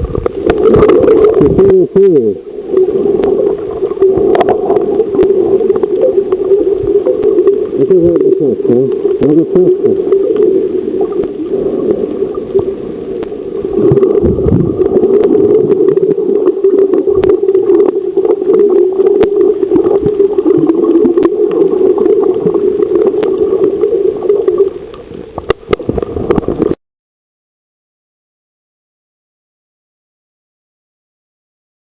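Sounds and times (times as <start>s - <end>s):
underwater clicks and crackles: 0.0s - 2.1s, 2.7s - 26.8s
muffled underwater drone: 0.0s - 26.8s.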